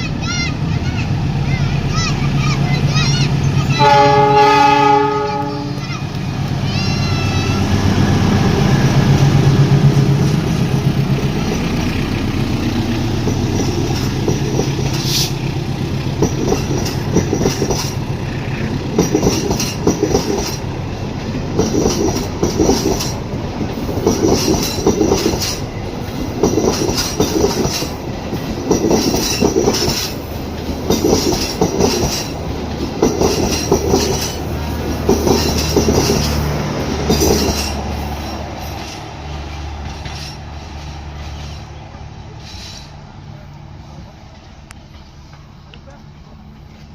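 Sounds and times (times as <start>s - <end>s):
locomotive engine drone: 0.0s - 46.9s
train horn blast: 3.7s - 5.9s
train wheels clattering over rail joints: 8.5s - 43.0s.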